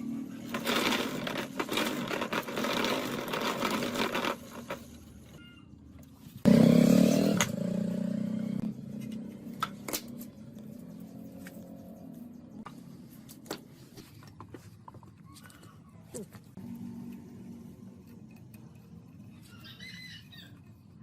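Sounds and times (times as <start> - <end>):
scraping and handling noises: 0.4 - 5.4
steady mechanical hum: 8.7 - 21.0.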